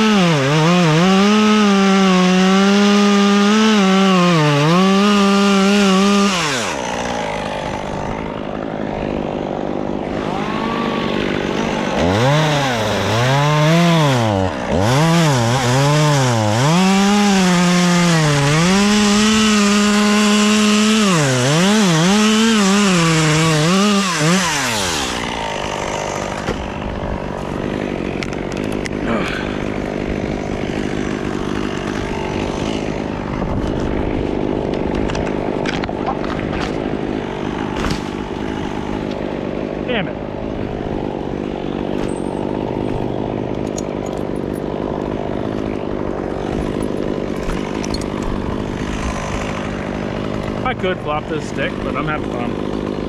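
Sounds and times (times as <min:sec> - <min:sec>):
chainsaw revving cutting wood: 0:00.0 - 0:53.0.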